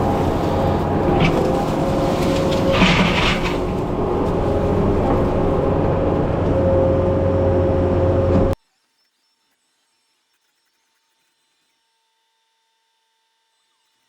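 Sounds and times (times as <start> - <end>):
diesel engine running: 0.0 - 8.6.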